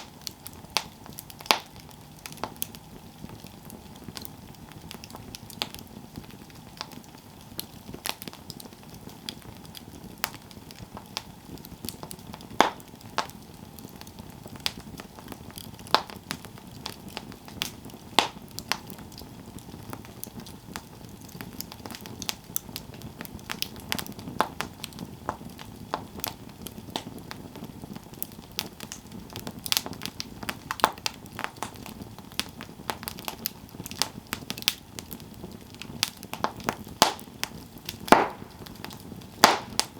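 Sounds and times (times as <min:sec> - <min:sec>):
campfire wood crackling and popping: 0:00.0 - 0:39.9
low steady hiss: 0:00.0 - 0:39.9.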